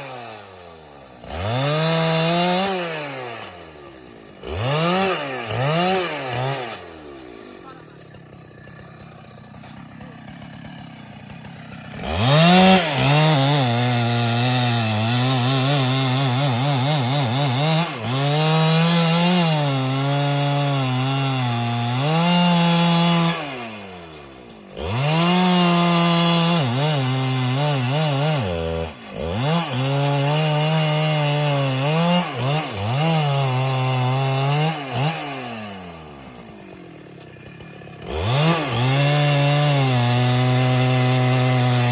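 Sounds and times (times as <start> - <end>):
chainsaw idling and cutting wood: 0.0 - 41.9.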